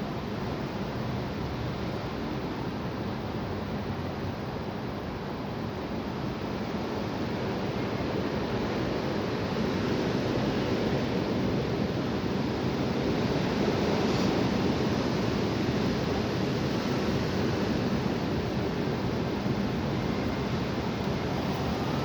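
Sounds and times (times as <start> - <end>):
strong wind blowing: 12.7 - 22.0.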